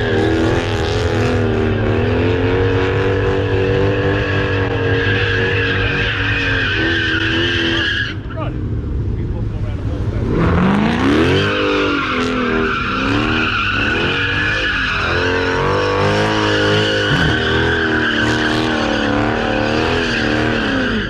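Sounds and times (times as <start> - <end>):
car engine revving hard: 0.0 - 7.8, 10.2 - 21.0
tyres squealing: 11.1 - 21.0.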